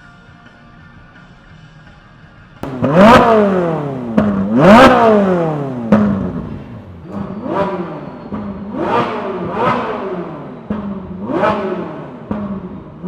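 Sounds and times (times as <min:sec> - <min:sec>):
engine idling: 0:02.6 - 0:13.0
vehicle engine revving blips: 0:02.6 - 0:13.0.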